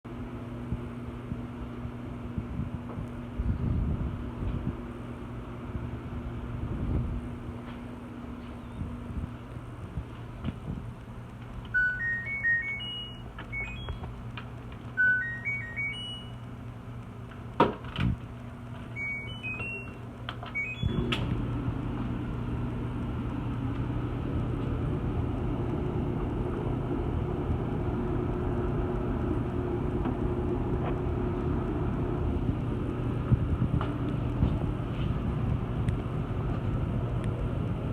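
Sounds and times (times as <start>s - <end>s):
washing machine humming: 0.1s - 37.9s
electronic beep tones: 11.8s - 14.0s, 15.0s - 16.4s, 19.0s - 21.1s.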